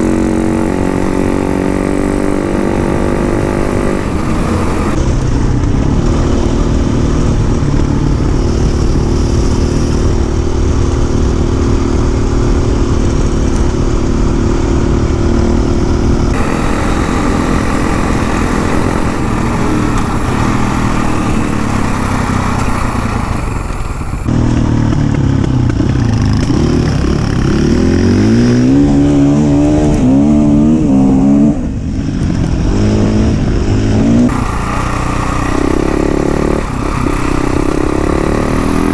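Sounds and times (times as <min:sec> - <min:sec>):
dirt bike engine revving: 0:00.0 - 0:05.0, 0:14.0 - 0:31.7, 0:32.6 - 0:38.9.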